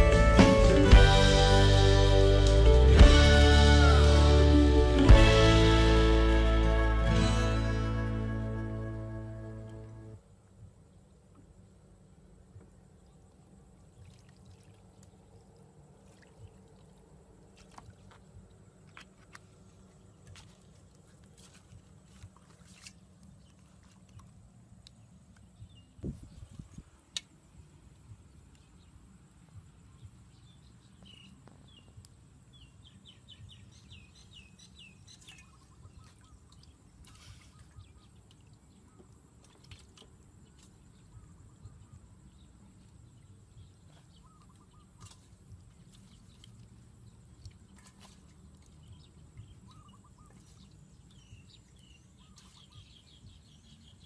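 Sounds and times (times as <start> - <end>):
small birds chirping: 28.0 - 54.0.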